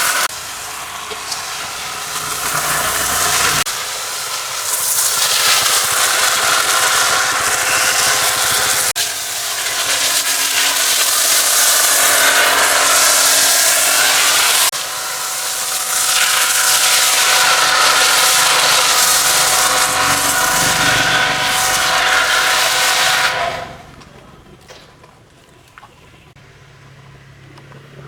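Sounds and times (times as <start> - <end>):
pressure washer spraying: 0.0 - 23.8.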